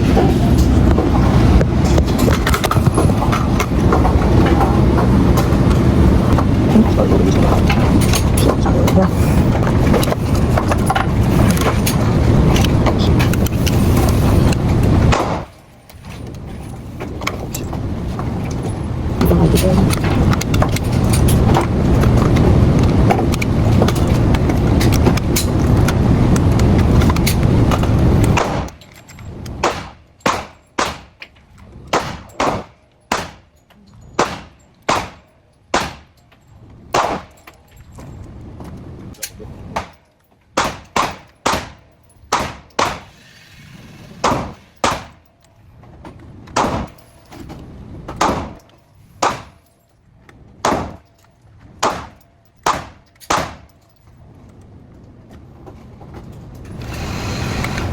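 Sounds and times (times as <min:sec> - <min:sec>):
loud rumbling noise: 0:00.0 - 0:15.6, 0:16.2 - 0:28.7, 0:43.0 - 0:45.2, 0:56.6 - 0:57.9
gunshots with echo: 0:31.9 - 0:33.5, 0:34.2 - 0:36.1, 0:44.0 - 0:45.2.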